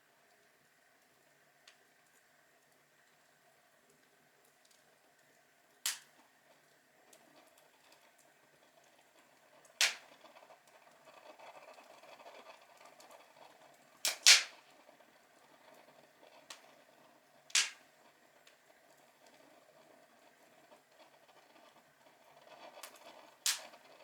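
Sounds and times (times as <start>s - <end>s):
log fire crackling: 4.6s - 24.0s
burning wood popping: 5.9s - 24.0s.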